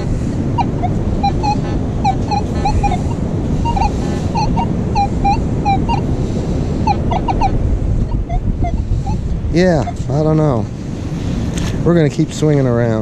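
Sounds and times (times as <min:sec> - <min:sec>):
metal detector chirping tones: 0:00.0 - 0:06.1, 0:06.8 - 0:09.2
wind buffeting microphone: 0:00.0 - 0:13.0.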